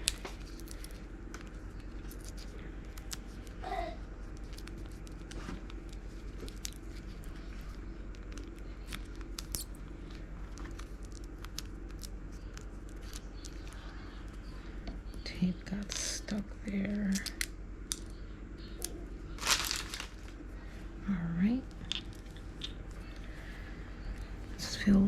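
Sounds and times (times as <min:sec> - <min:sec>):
tape and craft pieces crinkling: 0:00.0 - 0:14.4, 0:18.8 - 0:20.4
steady low hum: 0:00.0 - 0:25.0.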